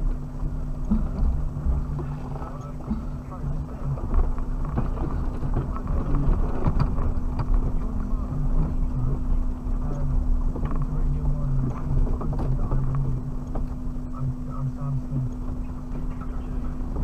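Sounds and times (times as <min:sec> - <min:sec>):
knocks and rattles: 0:00.0 - 0:09.2, 0:10.3 - 0:13.9
car engine hum from inside: 0:00.0 - 0:17.0.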